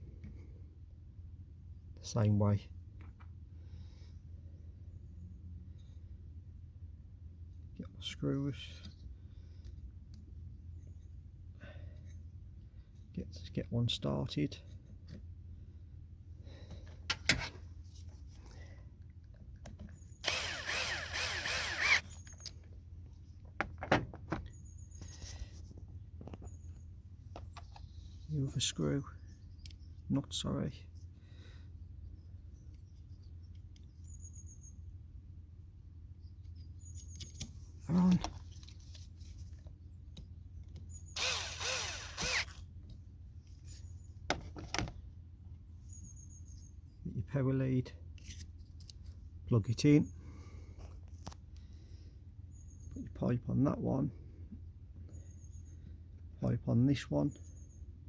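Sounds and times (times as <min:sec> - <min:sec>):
power tool spinning: 0:20.2 - 0:22.4, 0:41.2 - 0:42.6.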